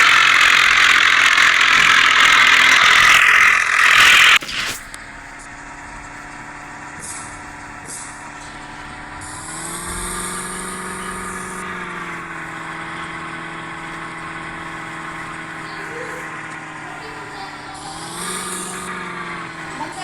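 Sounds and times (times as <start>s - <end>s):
loud rushing noise: 0.0s - 11.6s
car engine running: 0.0s - 20.0s.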